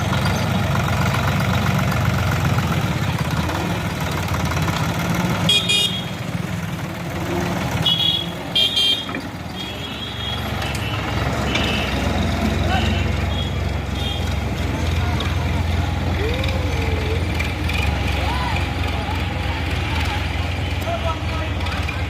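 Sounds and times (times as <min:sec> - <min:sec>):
tractor engine running: 0:00.0 - 0:22.0
vehicle horn honks: 0:05.4 - 0:06.2, 0:07.8 - 0:12.1, 0:12.7 - 0:14.4.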